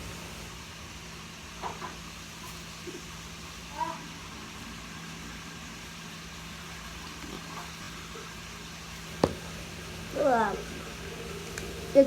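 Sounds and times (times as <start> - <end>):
faint knocks: 9.2 - 9.5.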